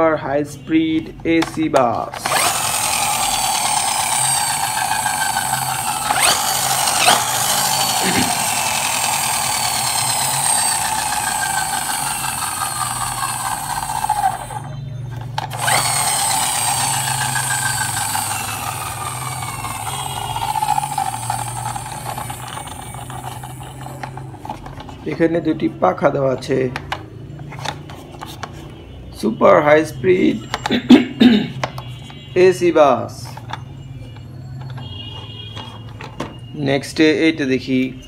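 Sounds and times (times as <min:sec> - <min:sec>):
small electric motor whirring: 0:02.2 - 0:24.8.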